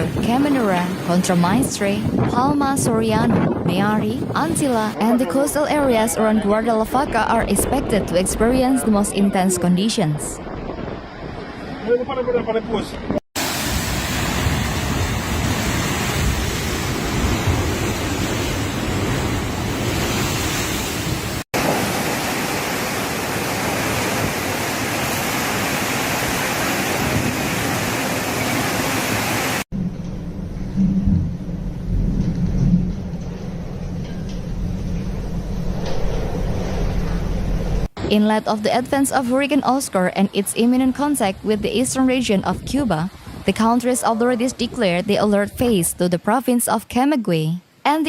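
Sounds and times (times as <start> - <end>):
wind gusts buffeting microphone: 0.0 - 22.2, 23.0 - 29.0, 40.8 - 46.0
storm wind and heavy rain: 0.0 - 46.1.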